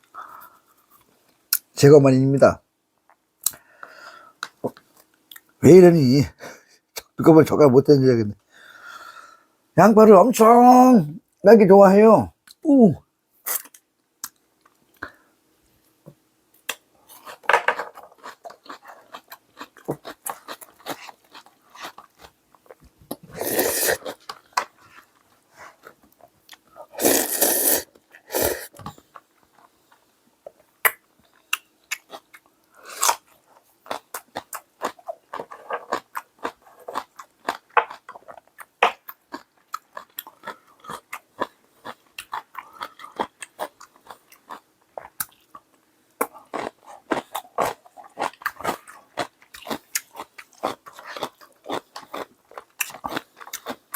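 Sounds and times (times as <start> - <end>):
person chewing and crunching: 16.6 - 30.0, 30.8 - 53.9.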